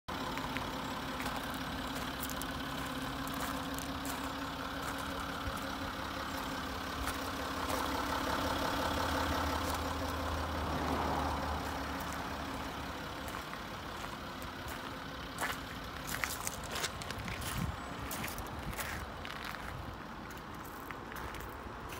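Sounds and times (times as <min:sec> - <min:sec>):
footsteps on gravel: 0:00.1 - 0:08.1, 0:09.6 - 0:10.3, 0:11.6 - 0:21.9
car engine idling: 0:00.1 - 0:21.9.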